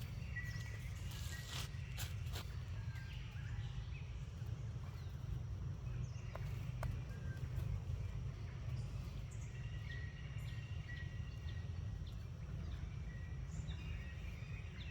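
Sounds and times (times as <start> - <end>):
thin whistles: 0.5 - 2.5.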